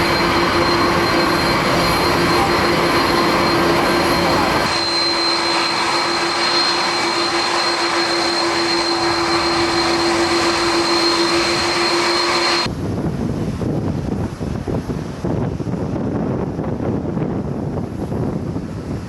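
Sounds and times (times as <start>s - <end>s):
wind buffeting microphone: 0.0s - 12.0s, 12.6s - 19.0s
jet engines whining: 0.0s - 12.7s.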